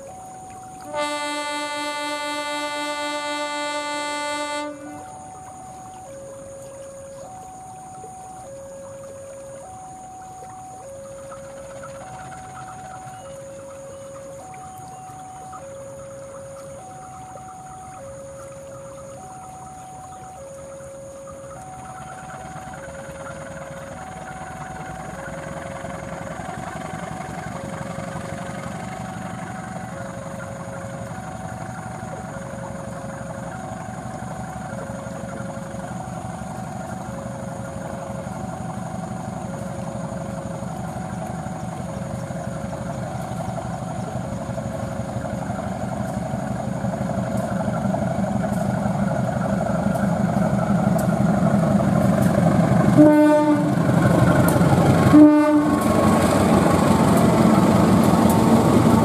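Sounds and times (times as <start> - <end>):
two-tone crossing alarm: 0.0 - 31.9, 52.9 - 59.0
diesel locomotive engine: 0.0 - 59.0
locomotive horn blast: 0.8 - 5.3, 52.9 - 54.1, 55.0 - 56.5.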